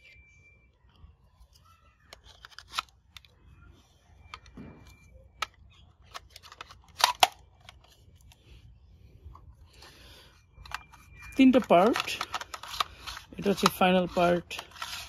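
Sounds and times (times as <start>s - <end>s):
plastic toy parts clicking: 1.4s - 3.4s, 4.2s - 8.4s, 10.6s - 15.0s.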